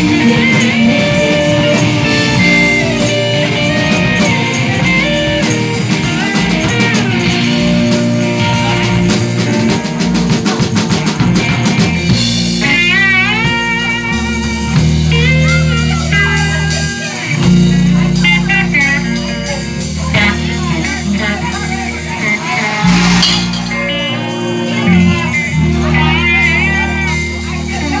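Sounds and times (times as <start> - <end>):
lead guitar bending notes: 0.0 - 10.4, 18.2 - 27.1
rock band playing: 0.0 - 28.0.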